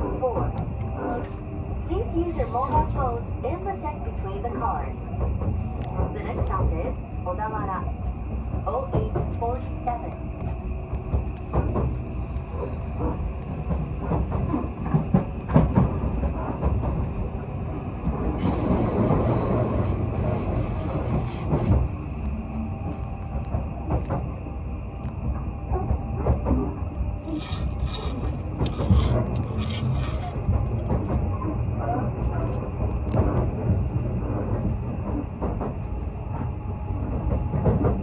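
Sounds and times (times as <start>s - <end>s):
wheels rumbling on rail: 0.0s - 38.0s
high wheel squeal: 18.4s - 21.7s.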